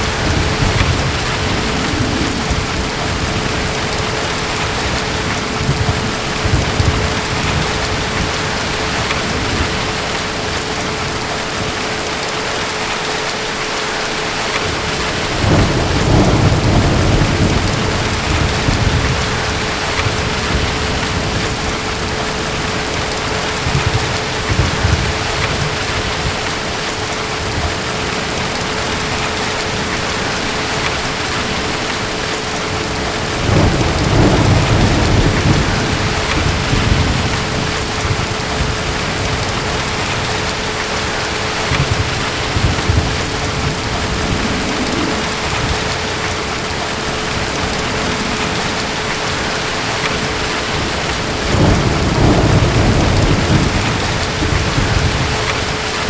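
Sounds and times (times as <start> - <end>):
distant thunder rolling: 0.0 - 12.2, 14.3 - 56.0
heavy rain: 0.0 - 56.0.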